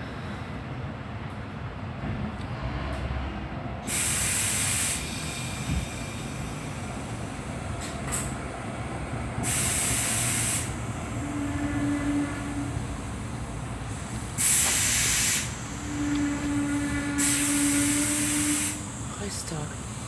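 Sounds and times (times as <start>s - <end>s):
train rumble: 0.0s - 20.0s
compressed air hissing: 3.8s - 8.4s, 9.3s - 20.0s.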